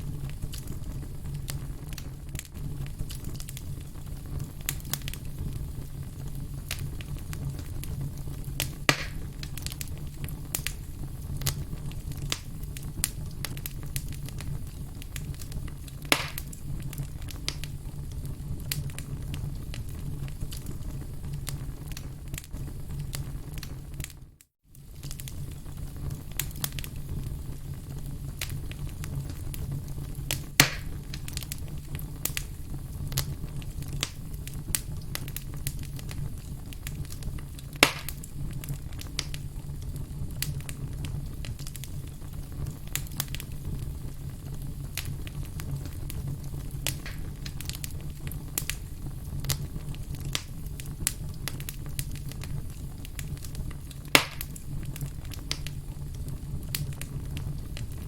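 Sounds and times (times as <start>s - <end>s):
campfire crackling: 0.0s - 58.0s
loud fire pops: 0.0s - 58.0s.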